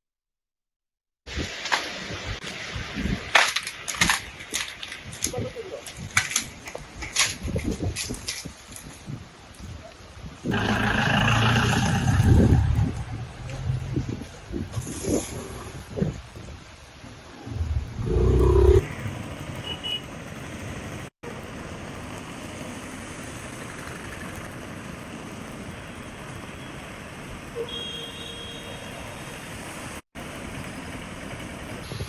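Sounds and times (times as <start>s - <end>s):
outdoor traffic noise: 1.6s - 32.0s
loud vehicle: 10.5s - 15.7s.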